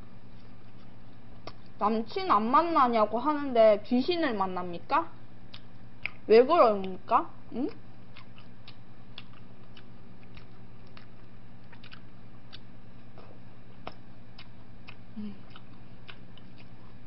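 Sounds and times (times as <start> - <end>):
low electrical hum: 0.0 - 17.0
chewing mouth clicks and smacks: 0.4 - 1.8, 5.5 - 7.0, 7.7 - 17.0.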